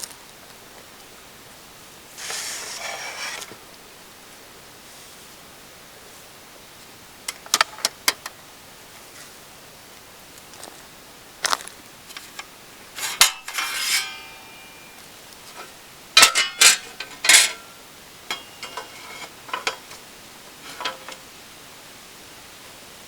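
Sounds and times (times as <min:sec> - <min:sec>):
metal pieces clanking: 0:12.1 - 0:20.0, 0:20.6 - 0:21.2.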